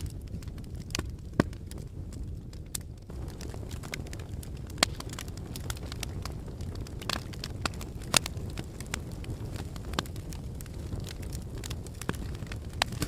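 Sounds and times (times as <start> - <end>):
lava crackling and popping: 0.0 - 13.0
sharp cracks: 2.7 - 6.2, 11.0 - 13.0.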